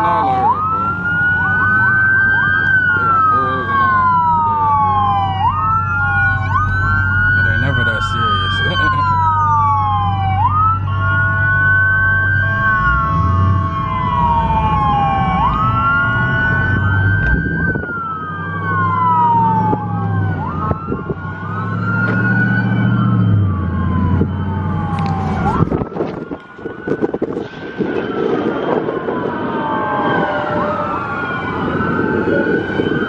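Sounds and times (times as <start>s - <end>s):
car engines running: 0.0s - 33.0s
police siren wailing: 0.0s - 33.0s.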